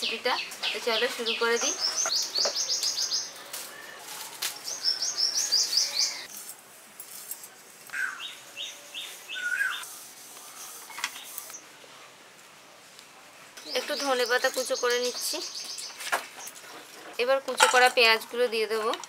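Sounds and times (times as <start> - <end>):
small birds chirping: 0.0 - 6.3, 7.9 - 11.6, 13.6 - 16.7.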